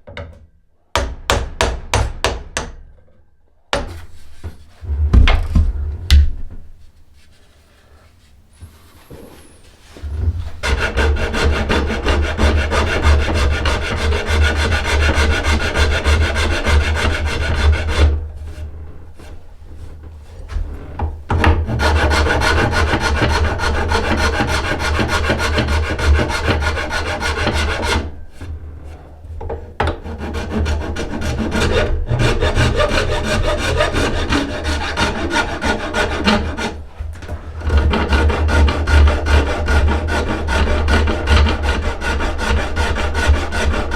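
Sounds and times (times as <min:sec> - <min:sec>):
hand tool rasping wood: 0:09.1 - 0:18.6, 0:21.3 - 0:28.1, 0:29.8 - 0:43.9.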